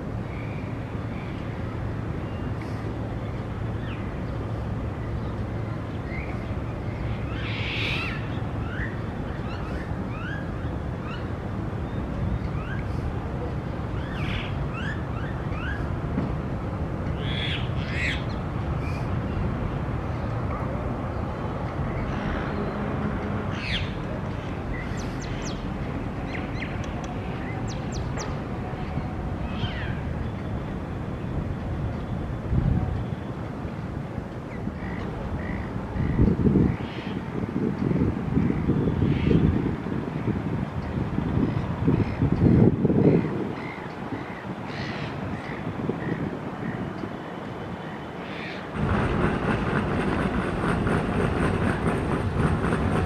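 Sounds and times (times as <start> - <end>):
steady low rumble: 48.7 - 53.0.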